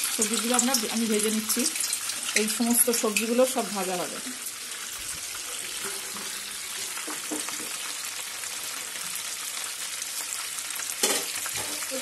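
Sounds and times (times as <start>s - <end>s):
chicken deep-frying sizzle: 0.0s - 12.0s.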